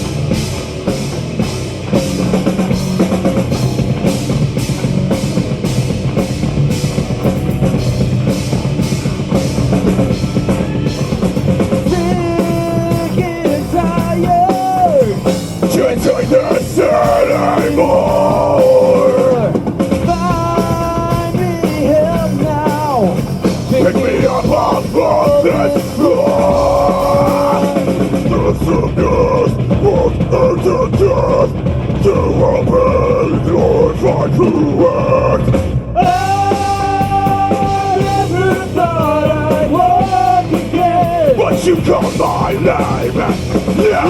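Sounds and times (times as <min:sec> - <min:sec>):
live metal band: 0:00.0 - 0:44.0.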